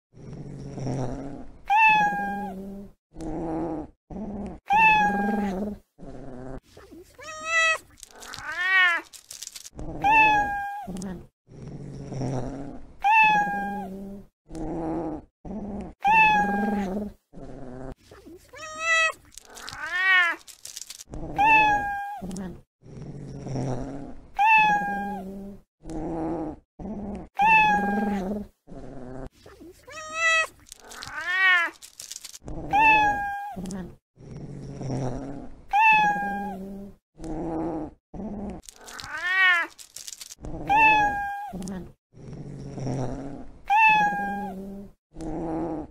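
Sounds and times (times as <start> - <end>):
cats meowing: 1.7 - 2.5, 4.7 - 5.5, 7.1 - 11.0, 13.0 - 13.9, 16.0 - 16.9, 18.4 - 20.6, 21.3 - 22.4, 24.4 - 25.2, 27.4 - 28.2, 29.8 - 33.7, 35.7 - 36.6, 38.7 - 40.0, 40.6 - 41.7, 43.7 - 44.6
low rough cat sounds: 9.9 - 11.3, 21.2 - 22.6, 24.4 - 25.6, 27.1 - 28.5, 29.6 - 34.0, 35.7 - 37.0, 40.4 - 42.0, 43.7 - 45.3.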